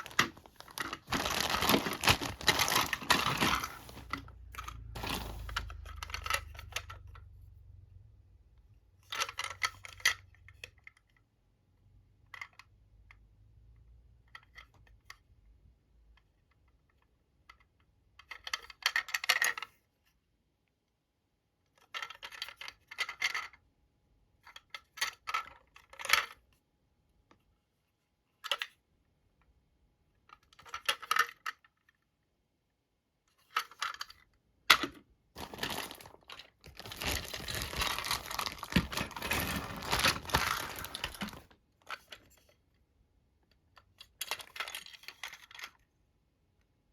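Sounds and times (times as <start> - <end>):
plastic toy clicks and rattles: 4.5 - 7.3, 9.1 - 11.0, 21.8 - 23.6, 30.3 - 31.9, 33.4 - 42.5, 43.8 - 45.8.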